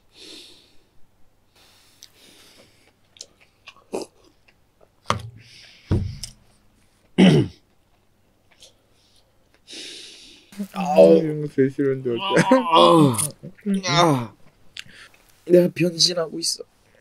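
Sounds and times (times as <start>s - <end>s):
person chewing food: 1.7s - 5.0s, 7.7s - 9.7s.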